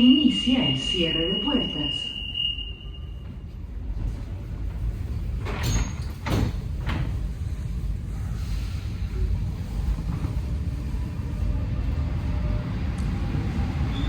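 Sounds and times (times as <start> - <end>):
door warning tone: 0.0 - 3.2
standing train hum: 0.0 - 14.0
train doors thudding shut: 5.3 - 7.4.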